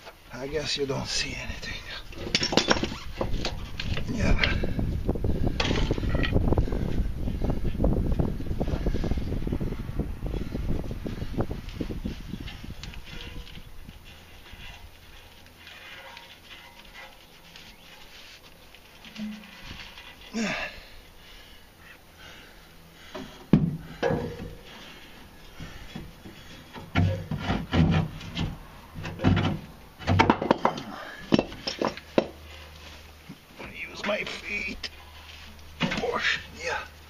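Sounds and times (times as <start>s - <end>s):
man grunting and breathing hard: 20.3s - 24.2s.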